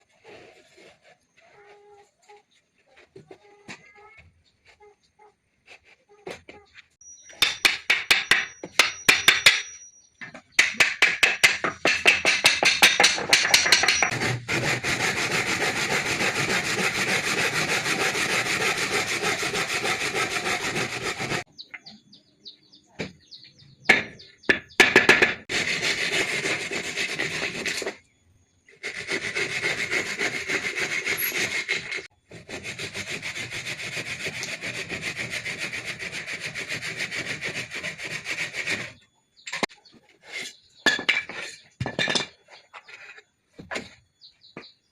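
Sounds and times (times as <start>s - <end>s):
saw cutting wood: 13.4s - 21.5s, 25.4s - 28.0s, 28.7s - 40.6s.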